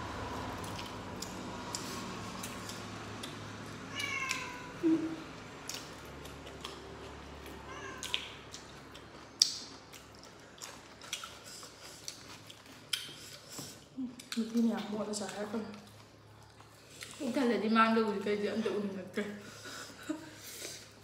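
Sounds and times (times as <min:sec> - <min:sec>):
wet chewing and lip-smacking: 0:00.4 - 0:03.7, 0:05.4 - 0:17.2.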